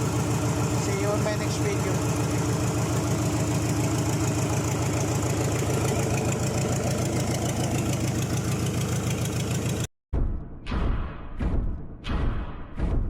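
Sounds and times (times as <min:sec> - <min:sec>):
diesel engine idling with clatter: 0:00.0 - 0:09.9.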